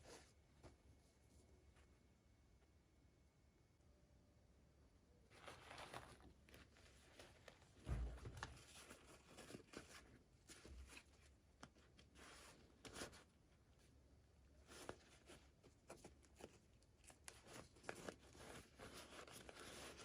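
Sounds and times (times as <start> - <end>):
packaging rustling and crinkling: 5.3 - 13.3
soft low bump: 7.8 - 8.6.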